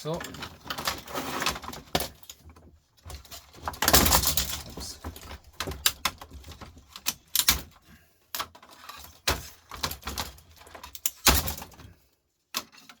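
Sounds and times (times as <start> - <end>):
record player parts clicking: 3.2 - 7.7, 9.2 - 11.8.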